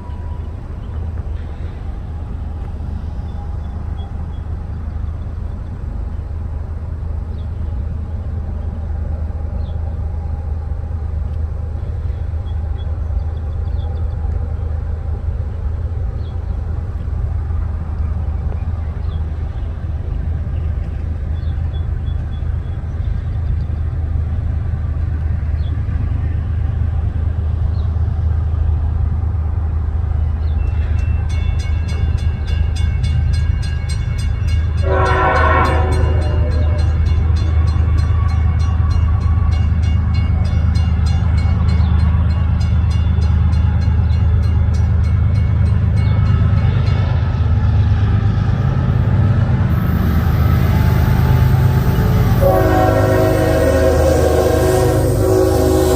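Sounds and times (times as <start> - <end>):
freight train rumbling past: 0.0 - 55.9
train horn blast: 34.8 - 37.3, 49.7 - 55.9.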